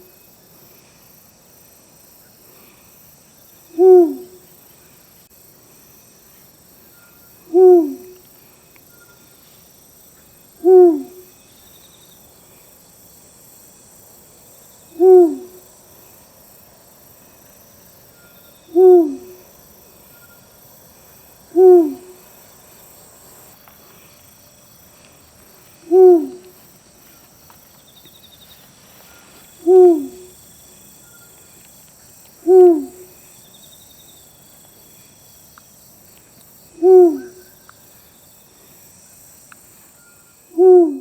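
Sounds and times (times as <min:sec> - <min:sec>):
owl hooting: 0:03.7 - 0:04.4, 0:07.5 - 0:08.2, 0:10.6 - 0:11.3, 0:14.9 - 0:15.6, 0:18.7 - 0:19.5, 0:21.5 - 0:22.2, 0:25.8 - 0:26.5, 0:29.6 - 0:30.4, 0:32.4 - 0:33.2, 0:36.8 - 0:37.6, 0:40.5 - 0:41.0.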